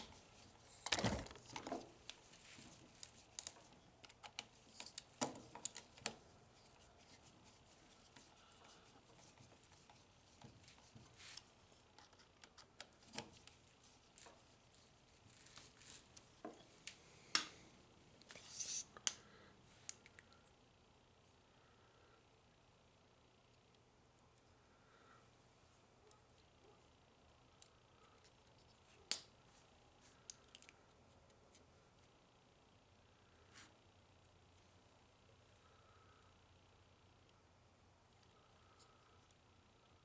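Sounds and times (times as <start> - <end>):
small clicks and light knocks: 0.8 - 6.2.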